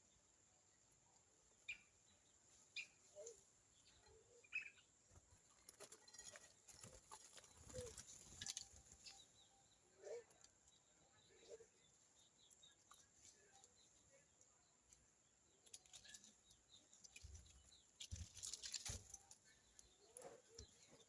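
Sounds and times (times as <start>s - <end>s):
birds chirping: 0.0s - 21.0s
knocks and rustling: 17.2s - 19.4s.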